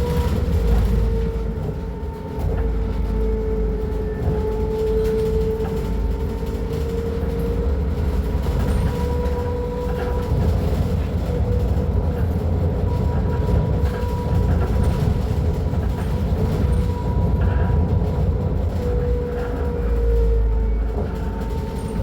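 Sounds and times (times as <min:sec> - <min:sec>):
bus engine rumbling: 0:00.0 - 0:22.0.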